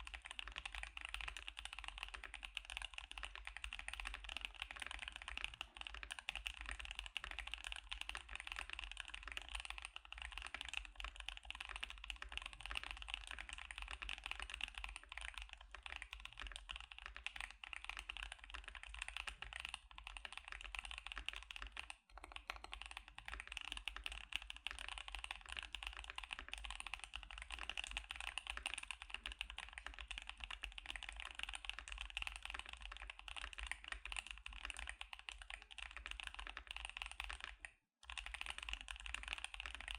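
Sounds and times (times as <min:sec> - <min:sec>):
mechanical keyboard typing: 0:00.1 - 0:39.9.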